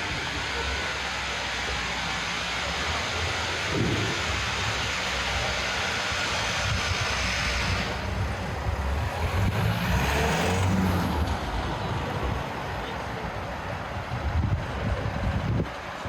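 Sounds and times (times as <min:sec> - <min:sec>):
traffic passing: 0:00.0 - 0:16.0
low engine drone: 0:01.4 - 0:12.4.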